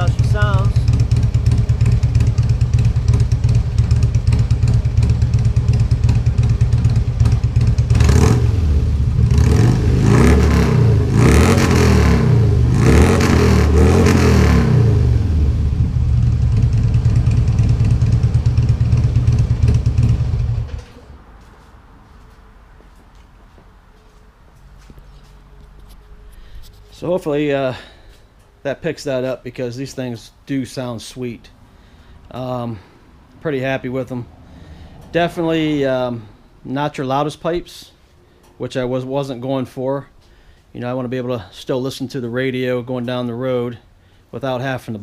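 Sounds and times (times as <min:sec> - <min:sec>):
motorcycle engine idling and revving: 0:00.0 - 0:21.2.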